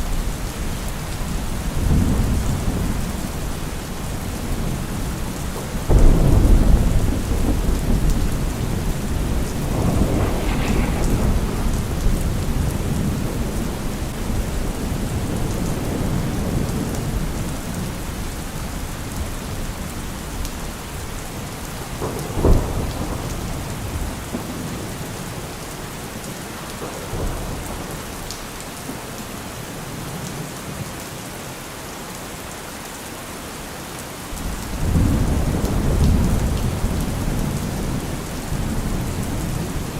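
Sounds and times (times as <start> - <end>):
rain falling: 0.0 - 39.9
thunder rumbling: 1.3 - 17.9, 34.4 - 39.9
sharp thunder crack: 5.9 - 14.4.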